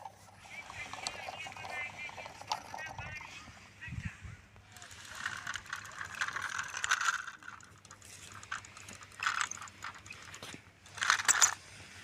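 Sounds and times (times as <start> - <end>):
toy tractor moving over ground: 0.0 - 12.0
scraping rattling bursts: 4.7 - 11.8.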